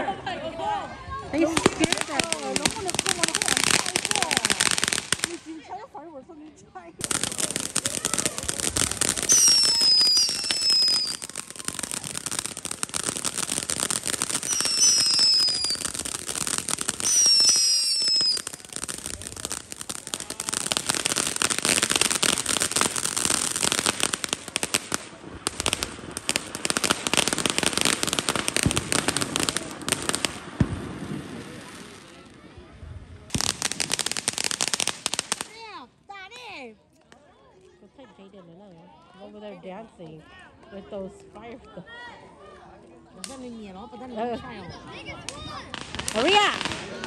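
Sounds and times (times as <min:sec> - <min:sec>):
fireworks crackling and popping: 0:01.2 - 0:36.6, 0:43.2 - 0:47.0
firework whistles: 0:07.0 - 0:30.8.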